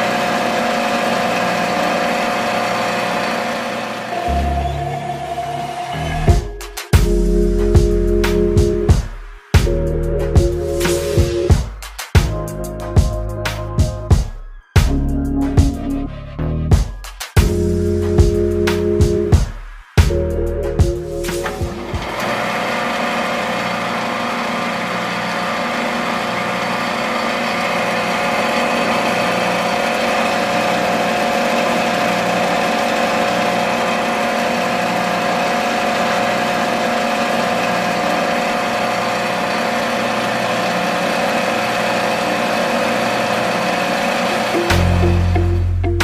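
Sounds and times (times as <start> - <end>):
motor humming: 0.0 - 7.4, 20.2 - 45.7.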